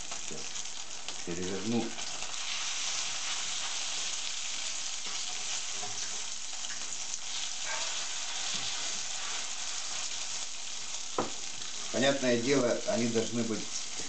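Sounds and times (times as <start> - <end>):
pancakes sizzling in oil: 0.0 - 14.0
fork and spatula scraping: 7.4 - 9.5.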